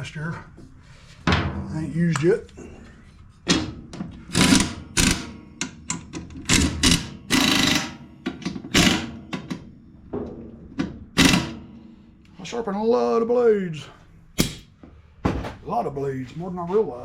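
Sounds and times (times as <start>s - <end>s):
hard objects clunking and clattering: 2.8s - 11.4s, 14.4s - 15.6s.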